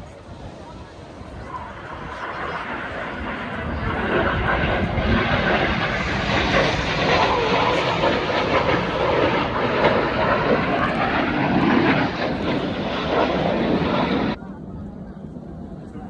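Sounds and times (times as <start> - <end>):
jets roaring overhead: 0.0 - 15.9.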